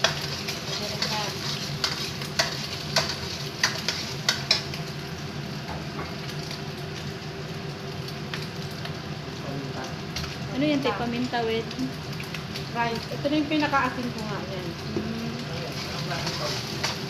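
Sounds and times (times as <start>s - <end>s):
metal spatula scraping pan: 0.0s - 4.6s
food sizzling in a wok: 0.0s - 17.0s.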